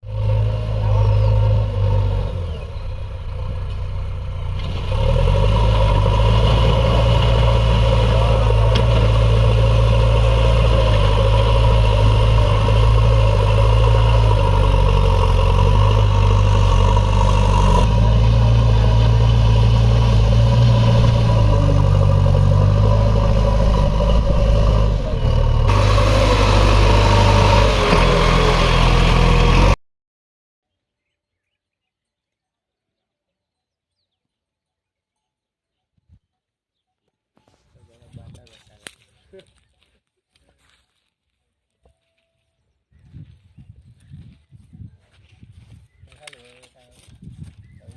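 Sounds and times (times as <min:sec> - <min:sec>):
backhoe diesel engine running: 0:00.0 - 0:29.8.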